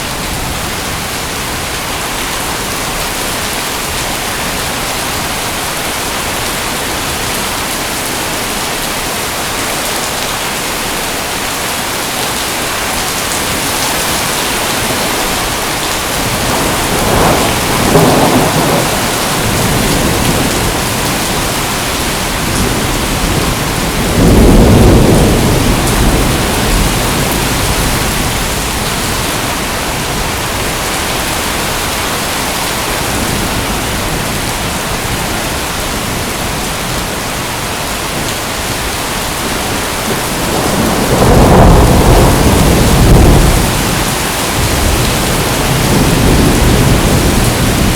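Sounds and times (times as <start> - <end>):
heavy rain hissing: 0.0 - 47.9
thunder rumbling: 13.2 - 37.1, 38.8 - 47.9.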